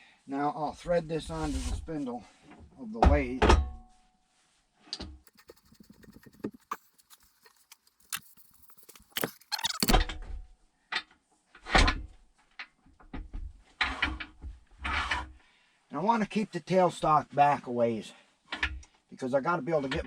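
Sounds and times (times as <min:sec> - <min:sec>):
heavy thumps and scrapes: 0:05.3 - 0:10.0.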